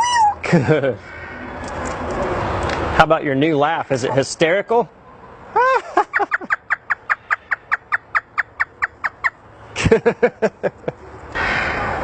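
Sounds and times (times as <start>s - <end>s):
parrot imitating laughter: 5.6s - 7.0s.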